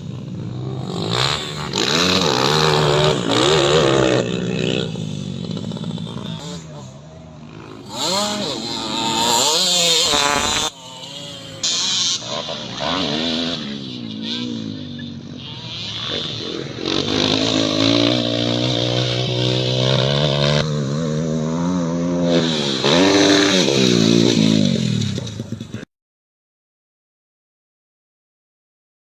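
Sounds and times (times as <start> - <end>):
motocross bike engine revving: 0.0 - 25.9.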